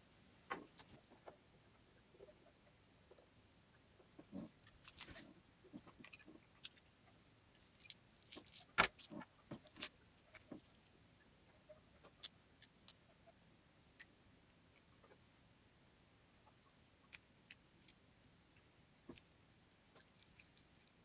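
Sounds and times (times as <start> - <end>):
small hard parts clicking: 19.1 - 21.0.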